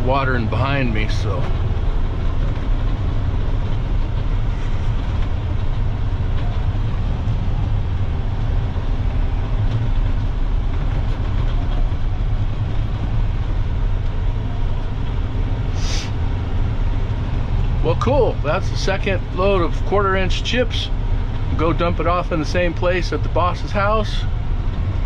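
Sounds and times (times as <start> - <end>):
dump truck engine rumbling: 0.0 - 25.0
short hiss: 15.7 - 16.2.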